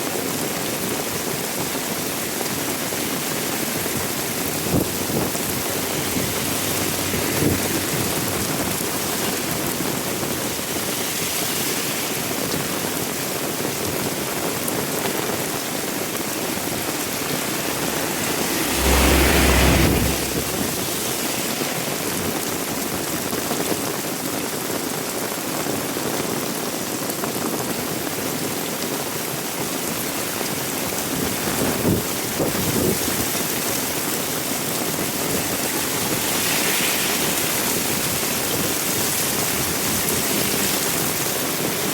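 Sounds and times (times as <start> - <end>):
heavy rain hissing: 0.0 - 41.9
deep low rumble: 16.0 - 21.3.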